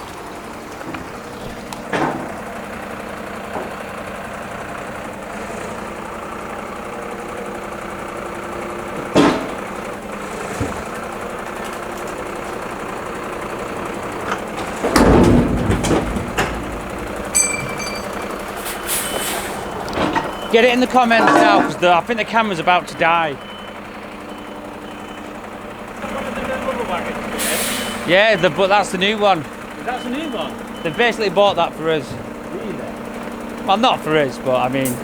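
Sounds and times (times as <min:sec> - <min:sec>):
diesel engine idling: 0:00.0 - 0:35.0
sharp knocks and clanks: 0:01.8 - 0:02.5, 0:09.0 - 0:11.0, 0:14.1 - 0:18.9, 0:19.9 - 0:22.1.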